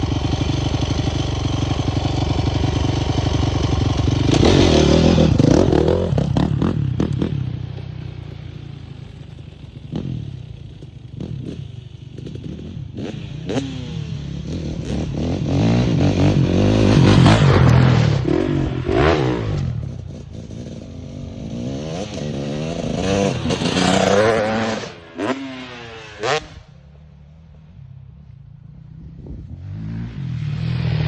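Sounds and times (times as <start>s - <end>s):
dirt bike engine revving: 0.0s - 8.2s, 12.2s - 26.7s.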